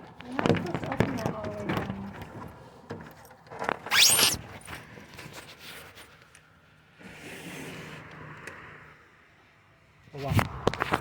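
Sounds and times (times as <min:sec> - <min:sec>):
window frame squealing: 0:03.9 - 0:04.4
window scraping: 0:03.9 - 0:04.4.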